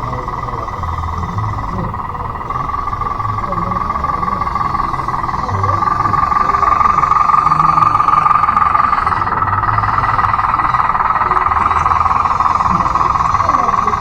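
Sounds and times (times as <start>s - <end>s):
electric motor whine: 0.0s - 14.0s.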